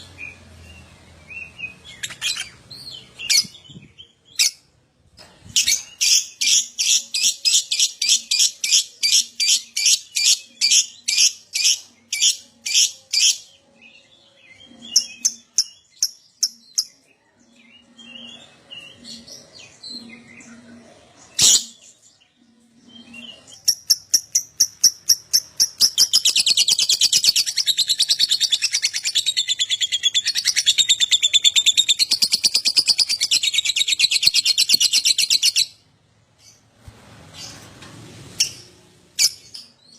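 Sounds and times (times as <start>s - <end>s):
lovebird chirping and trilling: 1.4s - 4.6s, 23.0s - 35.8s.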